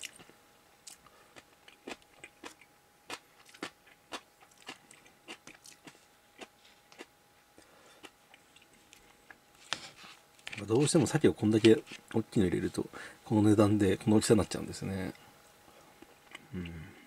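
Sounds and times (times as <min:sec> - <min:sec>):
person chewing food: 0:00.0 - 0:10.6.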